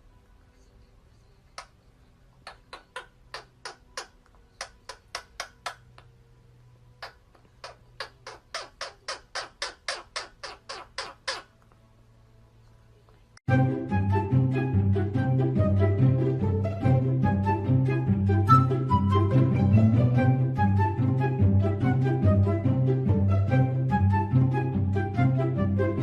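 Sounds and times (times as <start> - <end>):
parrot squawking: 2.4 - 6.1, 7.0 - 11.6.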